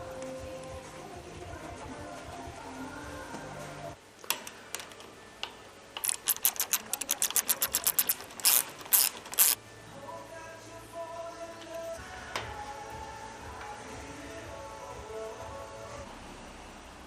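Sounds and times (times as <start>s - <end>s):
ratchet tool clicking: 6.0s - 9.6s.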